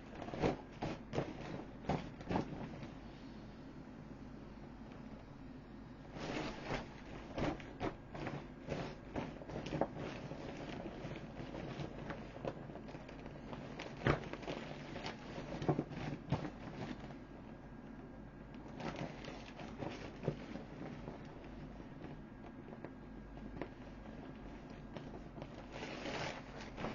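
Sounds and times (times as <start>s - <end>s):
plastic crackling and crumpling: 0.0s - 3.0s, 6.0s - 26.9s.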